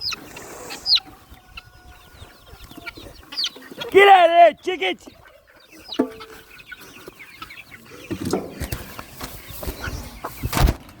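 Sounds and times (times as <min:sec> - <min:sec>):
chicken squawk: 0:00.0 - 0:04.4
chickens clucking: 0:00.0 - 0:11.0.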